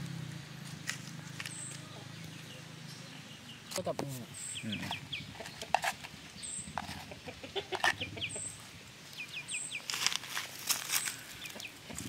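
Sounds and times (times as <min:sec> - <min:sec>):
bird-like chirping: 0:01.5 - 0:09.9.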